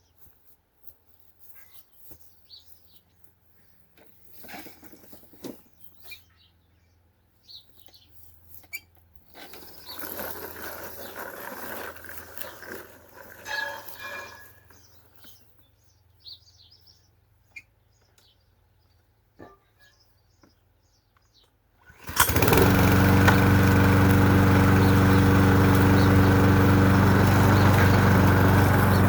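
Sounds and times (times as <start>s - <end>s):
small birds chirping: 1.2s - 3.8s, 5.0s - 8.9s, 13.9s - 21.6s, 22.3s - 29.0s.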